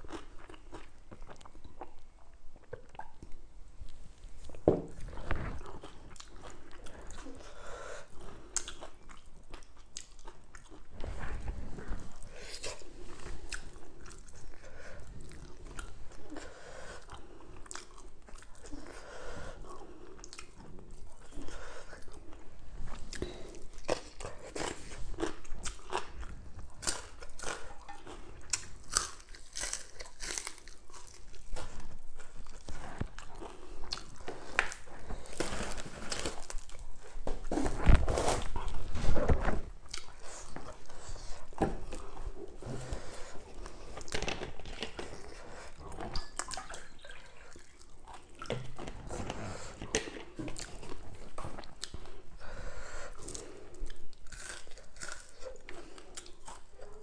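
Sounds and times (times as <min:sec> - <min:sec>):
chewing and crunching food: 0:00.0 - 0:57.0.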